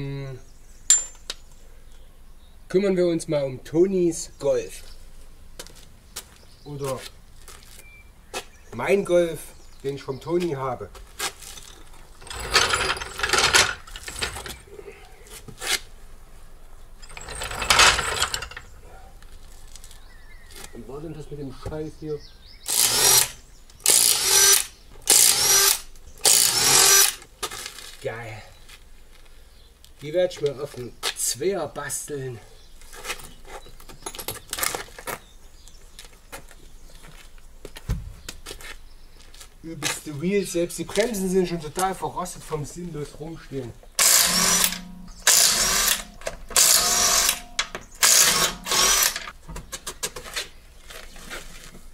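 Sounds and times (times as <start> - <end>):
metal parts clattering: 11.4 - 14.7, 17.0 - 18.9, 44.0 - 49.3
dull low thump: 37.9 - 38.2.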